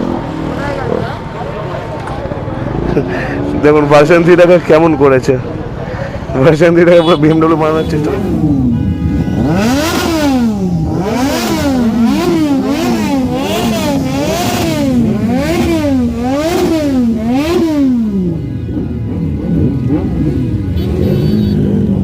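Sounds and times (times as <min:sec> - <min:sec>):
motorcycle engine revving: 0:07.1 - 0:22.0.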